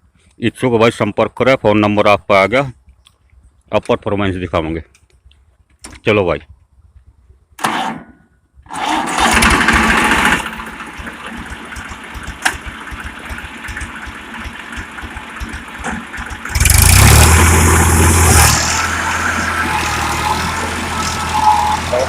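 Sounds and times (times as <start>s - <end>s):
tractor diesel engine running: 8.7s - 22.0s.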